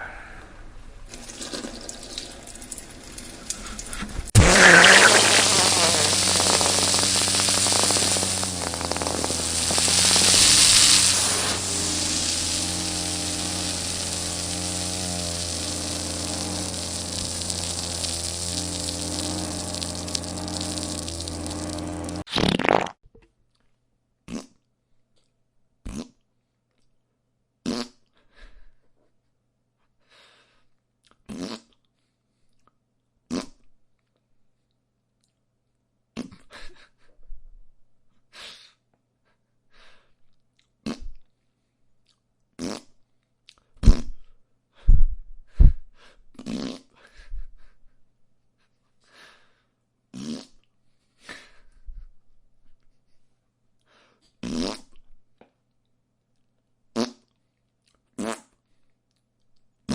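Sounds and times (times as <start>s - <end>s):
fart sound effects: 4.3s - 23.0s, 24.3s - 24.5s, 25.9s - 26.2s, 27.6s - 28.0s, 31.3s - 31.7s, 33.3s - 33.6s, 40.8s - 41.2s, 42.6s - 42.9s, 46.4s - 46.8s, 50.2s - 50.5s, 54.4s - 55.0s, 57.0s - 57.2s.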